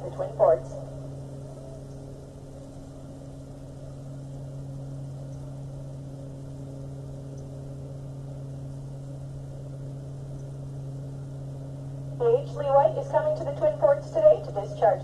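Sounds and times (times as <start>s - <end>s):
ship diesel engines droning: 12.2s - 15.0s.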